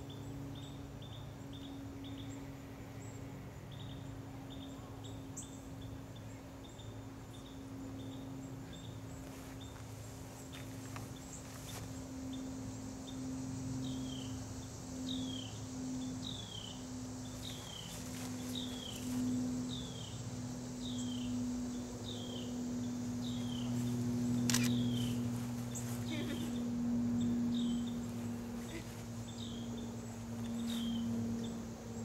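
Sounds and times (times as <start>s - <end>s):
steady low hum: 0.0s - 32.0s
bird chirping: 10.4s - 32.0s
sharp click: 24.4s - 25.0s.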